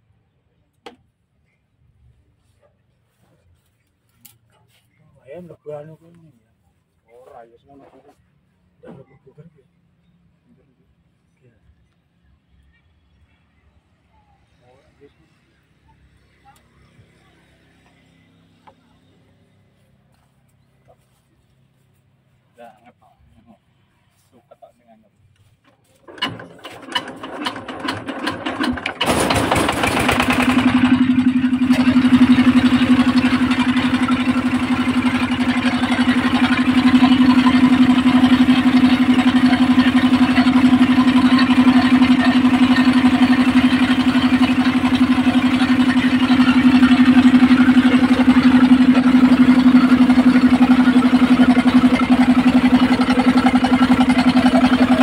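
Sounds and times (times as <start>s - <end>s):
saw engine chugging: 26.1s - 55.0s.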